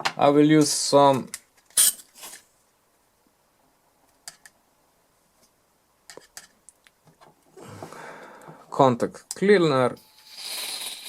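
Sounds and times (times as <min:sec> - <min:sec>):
small objects clicking and tapping: 0:04.1 - 0:04.6, 0:06.1 - 0:07.3.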